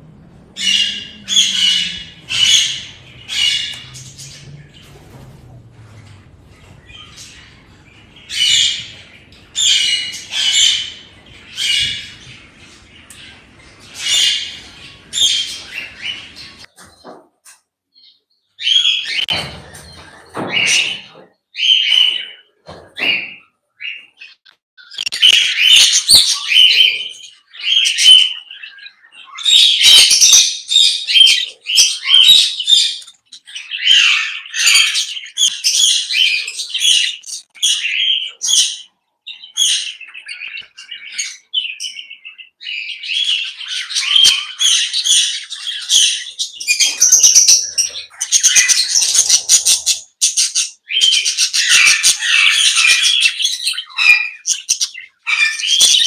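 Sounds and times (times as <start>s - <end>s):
parrots chirping and squawking: 0.3s - 17.1s, 18.6s - 56.0s.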